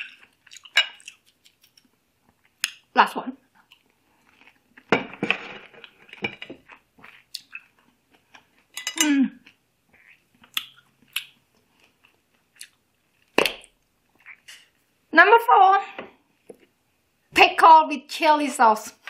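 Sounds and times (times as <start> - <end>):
person chewing: 0.0 - 2.9, 3.5 - 4.9, 5.7 - 14.8.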